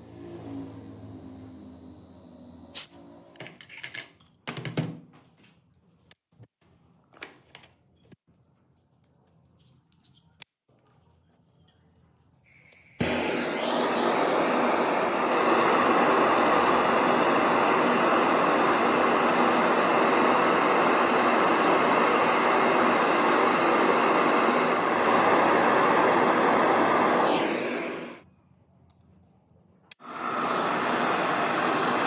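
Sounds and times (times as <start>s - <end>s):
power tool motor running: 13.0s - 28.2s, 30.0s - 32.0s.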